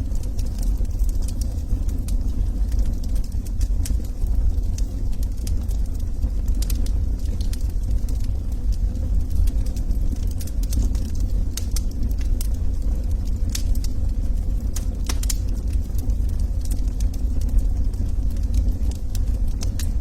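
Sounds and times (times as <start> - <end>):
fire rumbling: 0.0 - 20.0
logs crackling and popping: 0.0 - 20.0.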